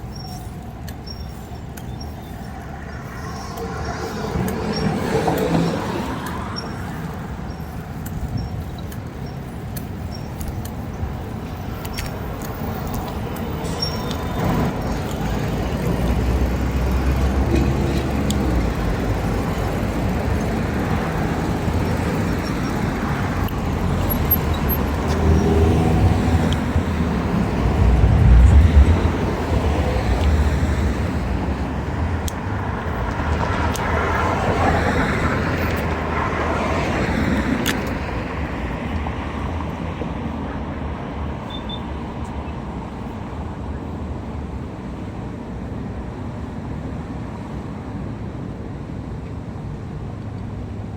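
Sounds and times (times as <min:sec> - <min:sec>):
road and wind noise: 0:00.0 - 0:50.9
vehicle engine running: 0:16.8 - 0:31.7.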